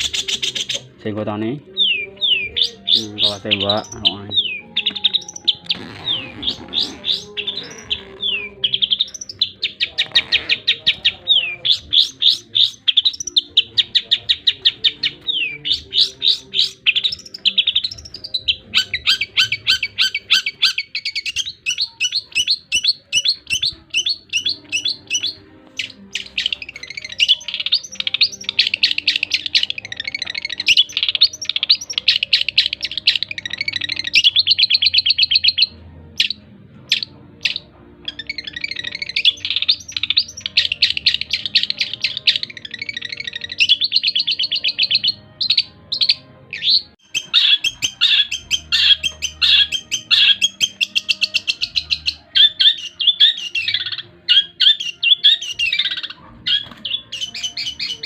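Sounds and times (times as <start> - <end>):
bird chattering trills: 0.0 - 1.0, 1.8 - 58.0.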